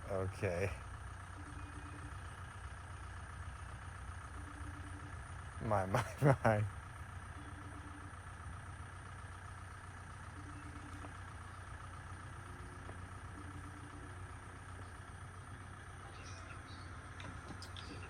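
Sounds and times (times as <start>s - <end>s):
engine idling: 0.0s - 18.0s
faint tone: 1.3s - 2.6s, 7.3s - 8.2s, 10.0s - 17.1s.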